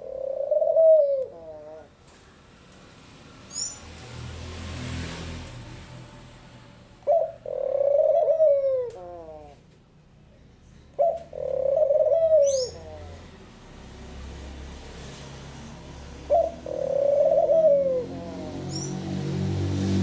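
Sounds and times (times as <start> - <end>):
dove cooing: 0.0 - 1.9, 7.0 - 9.6, 11.0 - 13.2, 16.2 - 18.9.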